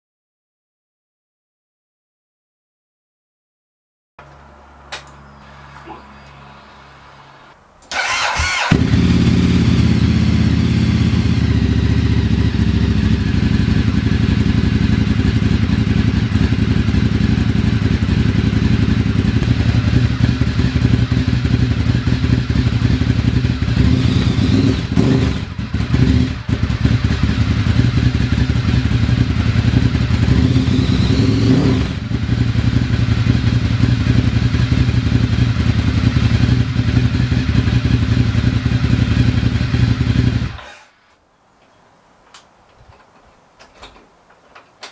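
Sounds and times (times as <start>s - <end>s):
motorcycle starter cranking: 7.8s - 10.4s
motorcycle engine idling loud: 8.7s - 40.6s.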